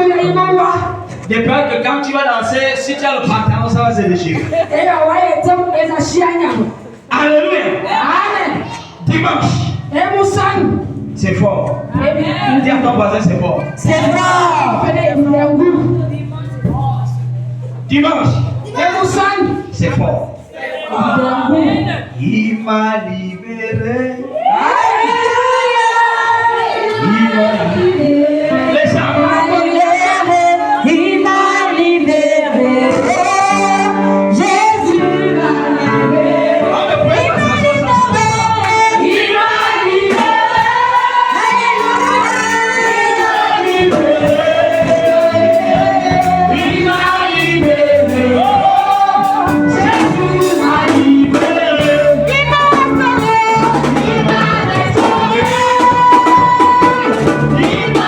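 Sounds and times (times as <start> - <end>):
choir singing gospel music: 0.0 - 58.0
band with percussion: 8.6 - 21.4, 32.8 - 58.0.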